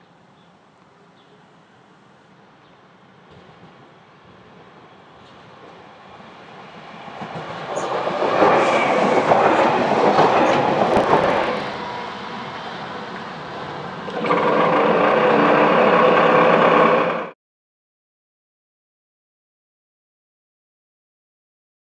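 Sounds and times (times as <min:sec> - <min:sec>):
train passing on tracks: 0:00.2 - 0:17.4.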